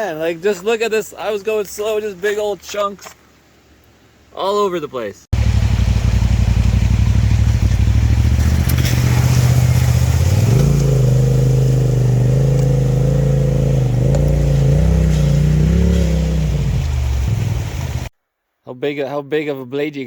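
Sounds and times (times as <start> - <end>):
off-road vehicle engine revving: 5.4 - 18.1.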